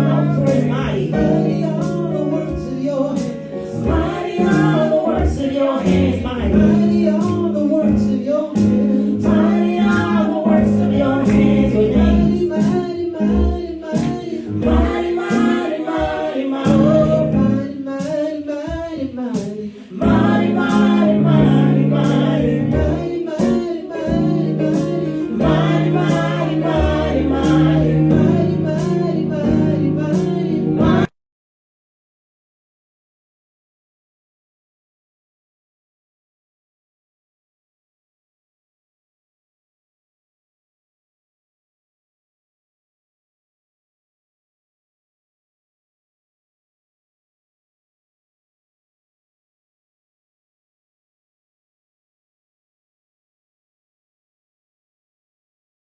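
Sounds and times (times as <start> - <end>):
group singing gospel song: 0.0 - 31.1
instrumental accompaniment: 20.1 - 31.1.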